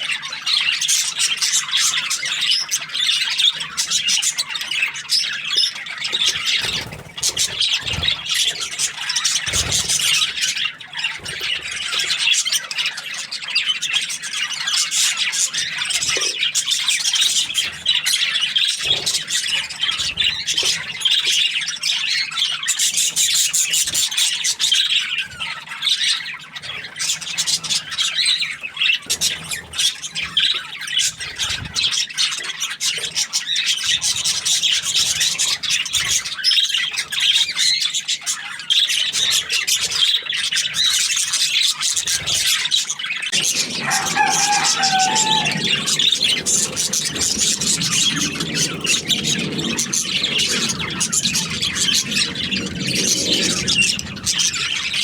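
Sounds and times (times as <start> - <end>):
budgerigars chirping: 43.3 - 55.0.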